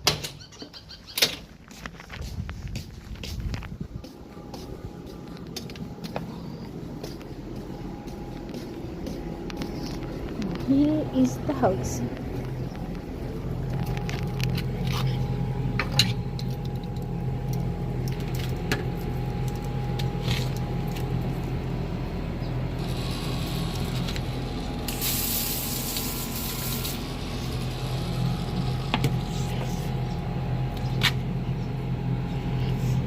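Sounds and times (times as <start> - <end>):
steady low hum: 1.2 - 33.0
garden hose spraying water: 22.7 - 29.6.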